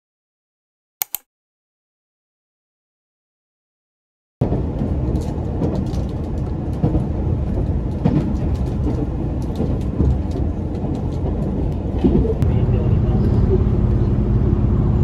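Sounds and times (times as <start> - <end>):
train rumble: 4.4 - 15.0.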